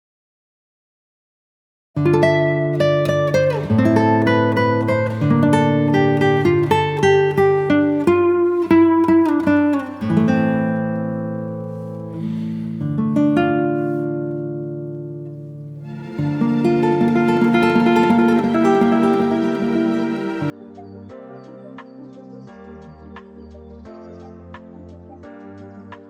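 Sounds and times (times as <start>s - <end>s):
plucked acoustic guitar music: 2.0s - 20.5s.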